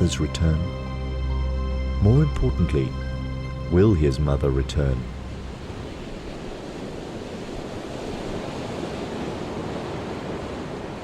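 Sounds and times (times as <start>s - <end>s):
ocean surf washing on shore: 2.3s - 11.0s.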